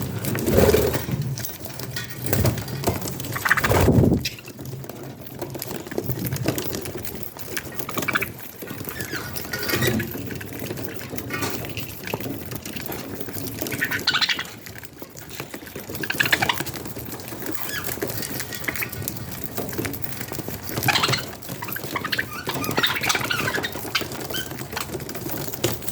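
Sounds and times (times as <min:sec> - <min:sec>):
baby budgies squeaking begging calls: 0:20.8 - 0:24.5.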